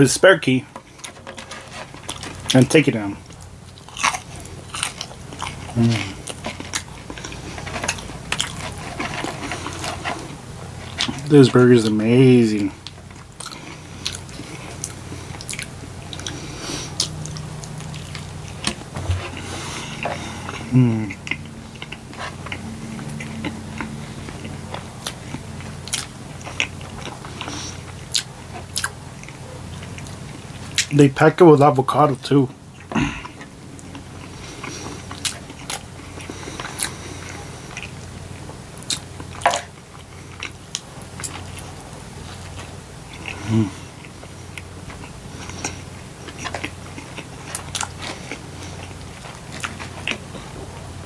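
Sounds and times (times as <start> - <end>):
low steady hum: 0.0 - 51.0
wet chewing mouth clicks: 12.8 - 30.9.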